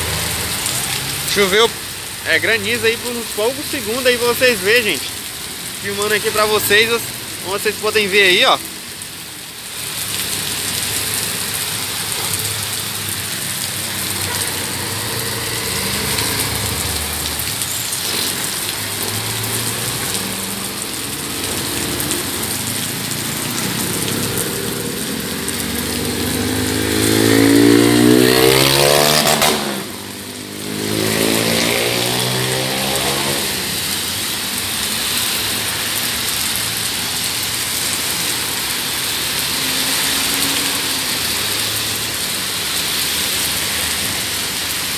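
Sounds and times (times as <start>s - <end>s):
heavy rain on a street: 0.0s - 44.9s
motor traffic passing: 0.0s - 44.9s
vehicle engine passing close: 14.1s - 33.8s.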